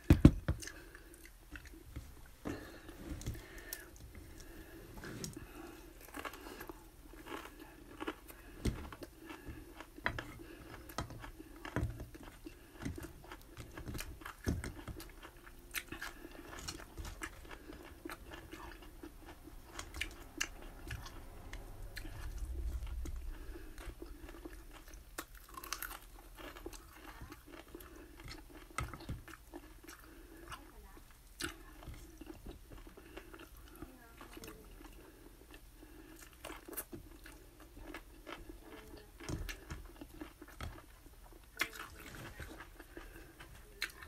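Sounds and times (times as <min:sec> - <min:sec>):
person chewing food: 0:00.0 - 0:44.0
low rumble: 0:17.5 - 0:25.2.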